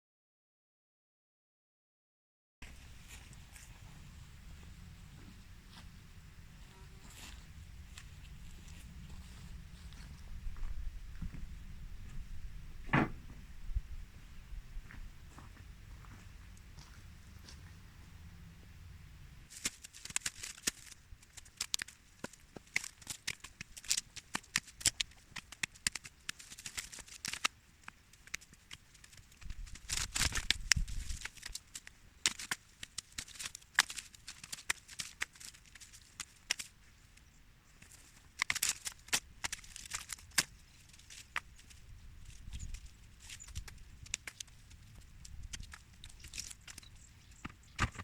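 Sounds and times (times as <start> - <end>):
dry brush rustling and crackling: 2.6 - 12.3, 15.3 - 18.0, 19.5 - 48.0
low rumble: 3.1 - 19.5
twigs snapping: 19.5 - 48.0.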